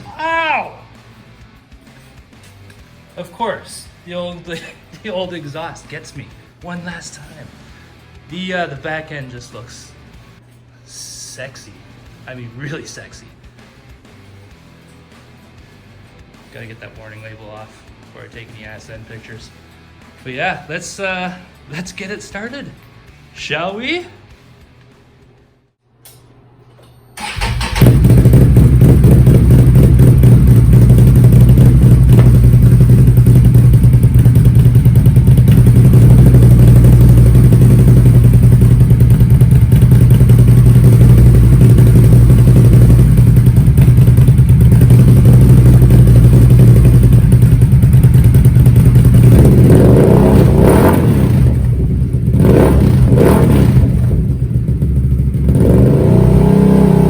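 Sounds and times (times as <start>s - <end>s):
engine starting and idling: 27.2s - 49.3s
engine revving: 27.2s - 57.0s.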